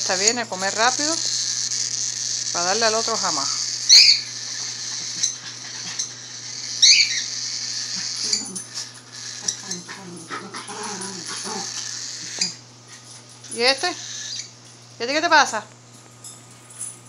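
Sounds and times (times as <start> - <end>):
bird chick raspy begging hiss: 2.5 - 12.6
bird chick chirp: 3.9 - 4.3.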